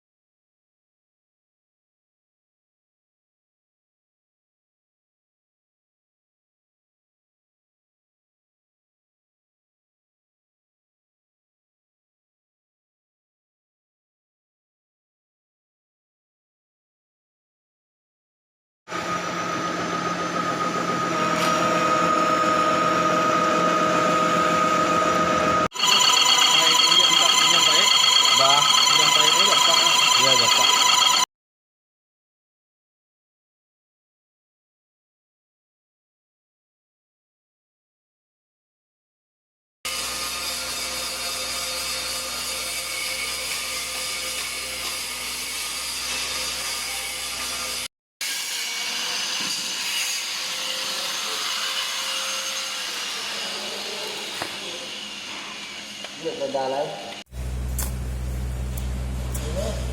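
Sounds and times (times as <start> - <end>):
corn husking machine whining: 18.9 - 31.2, 57.3 - 59.9
lower machine tone: 18.9 - 31.2, 57.3 - 59.9.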